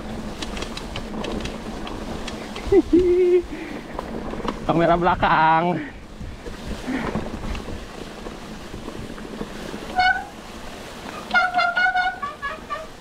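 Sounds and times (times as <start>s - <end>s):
wind buffeting microphone: 0.0s - 13.0s
long held call: 11.2s - 13.0s.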